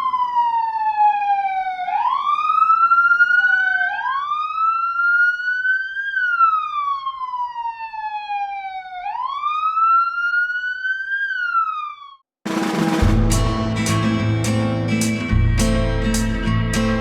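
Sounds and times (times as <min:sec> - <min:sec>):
police siren wailing: 0:00.0 - 0:12.2, 0:14.9 - 0:17.0
music: 0:12.5 - 0:17.0.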